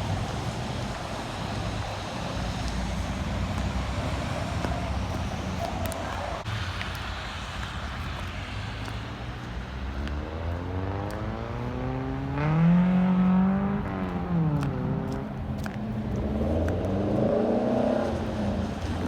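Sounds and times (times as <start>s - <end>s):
car engine accelerating: 9.7s - 19.0s.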